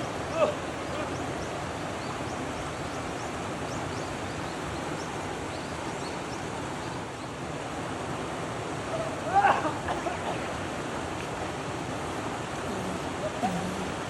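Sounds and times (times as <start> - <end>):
small waves breaking: 7.6 - 14.0.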